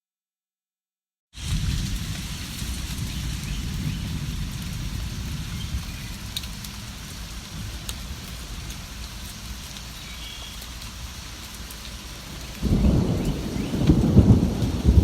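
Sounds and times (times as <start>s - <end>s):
distant thunder rumble: 1.4s - 9.0s, 12.2s - 15.0s
steady rain: 1.4s - 15.0s.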